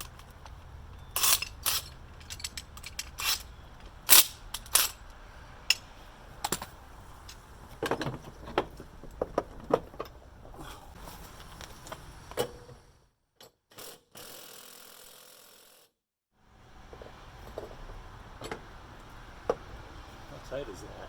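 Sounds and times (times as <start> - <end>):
metallic clicks and clanks of tools: 0.0 - 8.2.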